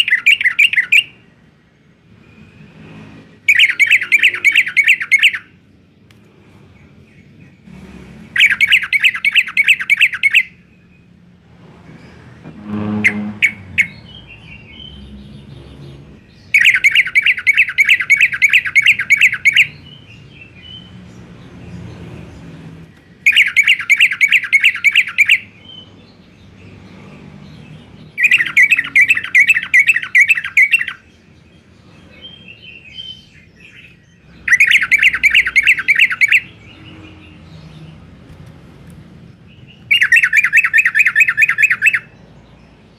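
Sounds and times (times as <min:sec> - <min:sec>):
bird chattering: 0:00.0 - 0:01.2, 0:03.4 - 0:05.7, 0:08.3 - 0:10.7, 0:12.9 - 0:21.0, 0:23.2 - 0:26.2, 0:27.6 - 0:38.1, 0:39.3 - 0:42.9.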